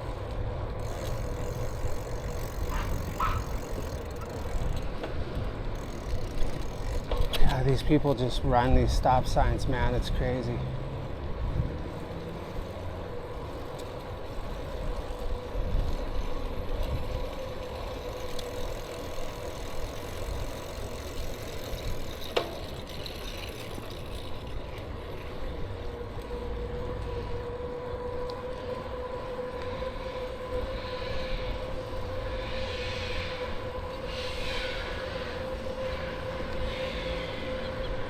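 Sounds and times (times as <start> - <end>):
faint steady whine: 0.0 - 7.5
road noise: 0.0 - 38.0
wind rumbling on microphone: 0.0 - 38.0.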